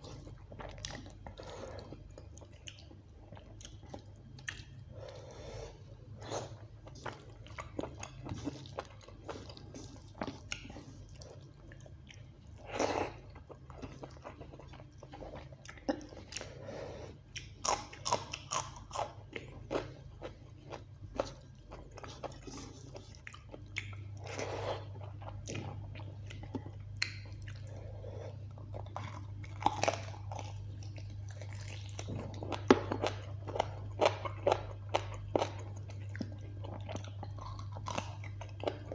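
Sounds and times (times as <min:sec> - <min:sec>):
person chewing and crunching: 0:00.0 - 0:16.7, 0:17.3 - 0:38.9
low steady hum: 0:00.0 - 0:38.9.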